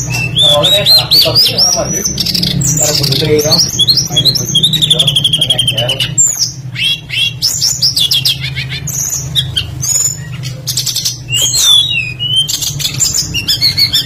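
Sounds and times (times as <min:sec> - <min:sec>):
songbird singing: 0:00.0 - 0:14.0
steady low hum: 0:00.0 - 0:14.0.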